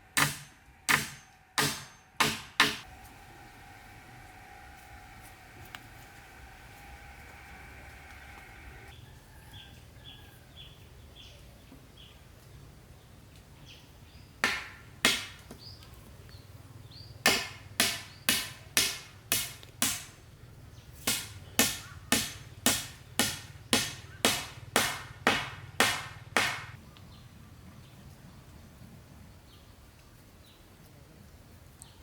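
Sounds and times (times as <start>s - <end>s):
blade chopping wood: 14.4s - 15.5s, 17.3s - 20.1s, 21.1s - 26.8s.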